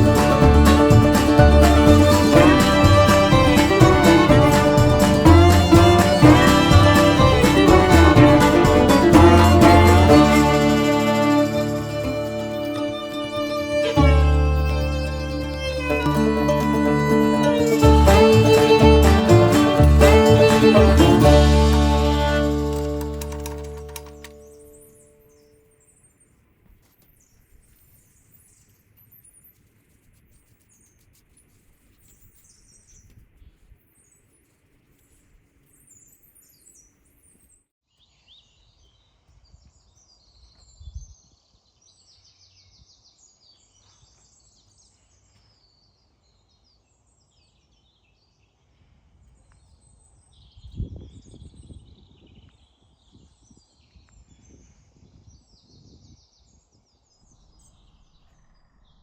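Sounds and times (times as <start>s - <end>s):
low thumps: 0.0s - 12.4s.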